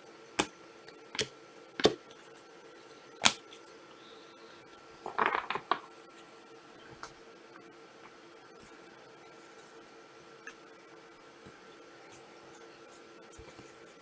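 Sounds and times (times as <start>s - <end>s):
cards tapping on table: 1.2s - 2.2s, 3.2s - 3.5s.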